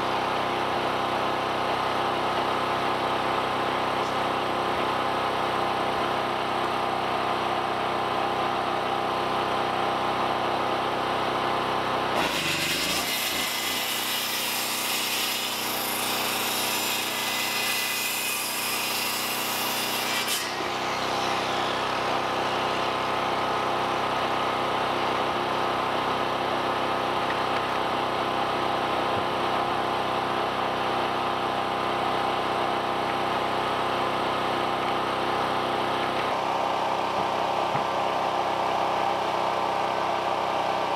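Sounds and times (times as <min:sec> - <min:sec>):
saw cutting wood: 0:12.1 - 0:26.0.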